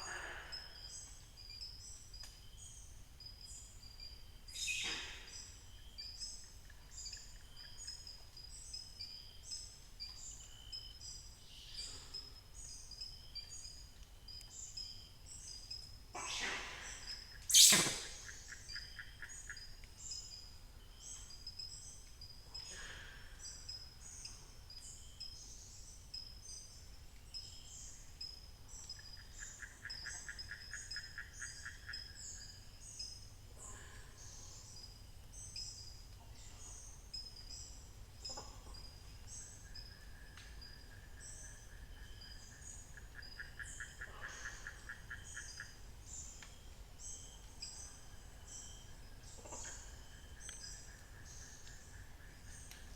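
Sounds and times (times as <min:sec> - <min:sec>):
birds calling: 0:16.2 - 0:19.6
high chirping: 0:17.5 - 0:18.3.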